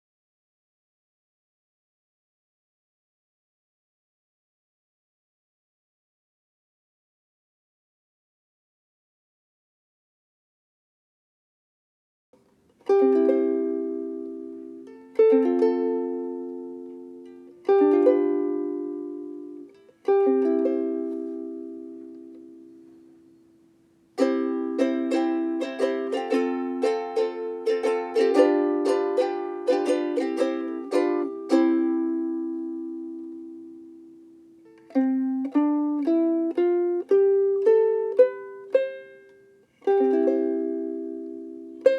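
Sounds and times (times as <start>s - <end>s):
ukulele strumming: 12.4s - 23.4s, 24.1s - 41.9s.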